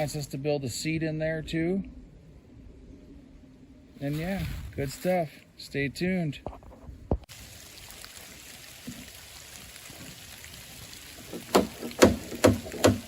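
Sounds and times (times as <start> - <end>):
rain and sleet hissing: 3.9 - 5.8, 7.2 - 12.0
sharp knocks: 11.3 - 13.0.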